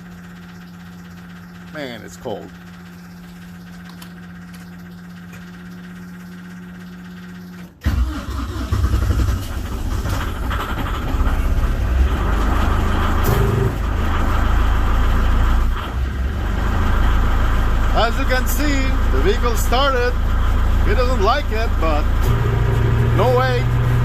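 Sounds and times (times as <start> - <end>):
diesel engine starting and running: 0.0 - 24.0
steady hum: 17.0 - 24.0.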